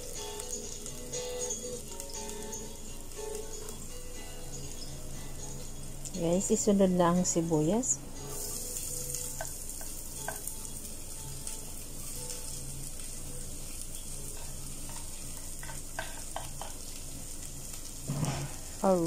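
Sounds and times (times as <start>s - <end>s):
oil sizzling in a pot: 0.0s - 19.0s
onions scraped from cutting board: 18.1s - 18.6s.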